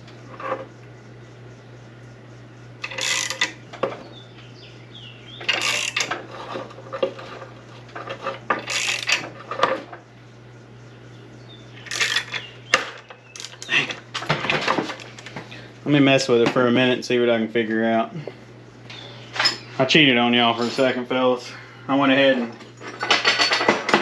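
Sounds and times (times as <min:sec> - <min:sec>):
steady low hum: 0:00.0 - 0:24.0
metal tools clanking and scraping: 0:02.8 - 0:04.0, 0:05.4 - 0:10.0, 0:11.8 - 0:15.3, 0:18.9 - 0:21.0, 0:22.2 - 0:24.0.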